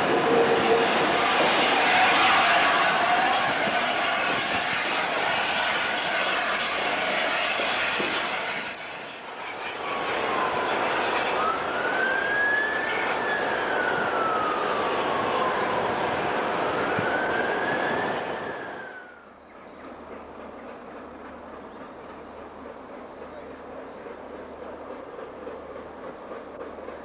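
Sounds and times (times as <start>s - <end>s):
wailing siren tone: 0.0s - 7.4s, 9.3s - 19.3s
train passing at speed: 0.0s - 27.0s.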